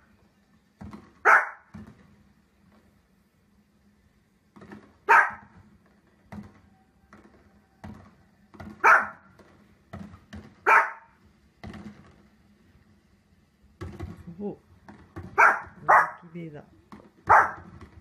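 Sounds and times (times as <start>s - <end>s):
dog barking: 1.2s - 1.7s, 5.1s - 5.6s, 8.8s - 9.3s, 10.6s - 11.2s, 15.4s - 16.2s, 17.3s - 17.7s.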